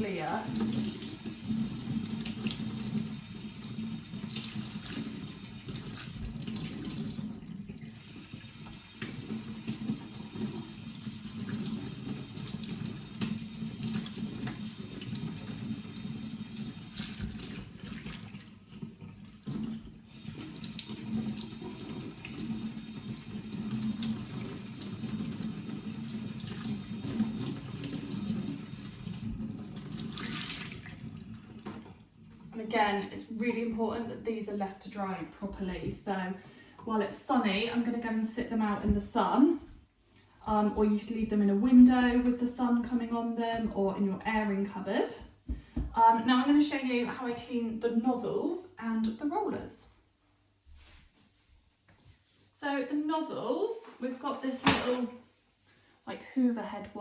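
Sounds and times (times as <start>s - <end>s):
tap water running into sink: 0.0s - 33.0s, 54.5s - 55.4s
sponge squeezed under water: 50.3s - 52.5s.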